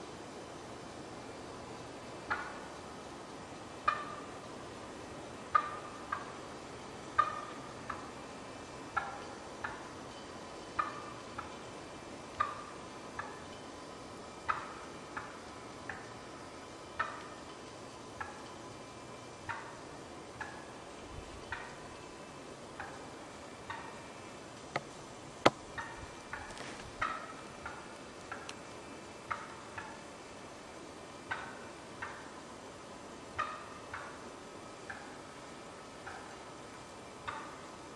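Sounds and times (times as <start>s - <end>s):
wild turkey clucking: 2.3s - 2.7s, 3.8s - 4.4s, 5.5s - 6.4s, 7.1s - 8.2s, 8.9s - 9.9s, 10.8s - 11.6s, 12.4s - 13.5s, 14.4s - 16.1s, 17.0s - 17.4s, 19.4s - 19.8s, 20.4s - 20.8s, 22.8s - 28.6s, 29.2s - 30.1s, 31.3s - 32.3s, 33.4s - 34.2s, 34.8s - 35.2s, 36.0s - 36.4s, 37.2s - 37.7s.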